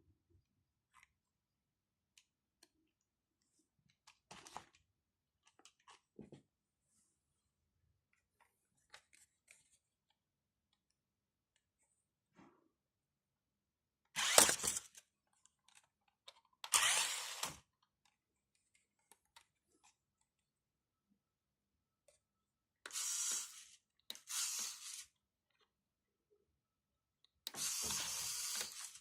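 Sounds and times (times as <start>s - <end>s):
small electric motor whirring: 14.2s - 15.0s, 16.6s - 17.6s, 22.9s - 25.2s, 27.5s - 29.0s.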